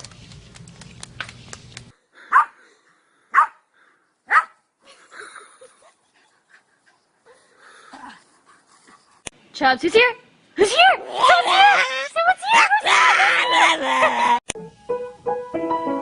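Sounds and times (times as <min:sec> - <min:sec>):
dog barking: 0:02.3 - 0:02.6, 0:03.3 - 0:03.6, 0:04.3 - 0:04.6.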